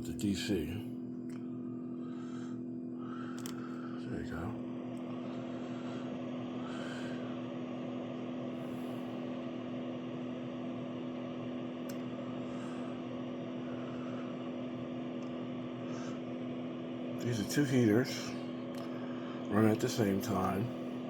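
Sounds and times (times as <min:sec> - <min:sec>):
electric heaters humming: 0:00.0 - 0:21.0.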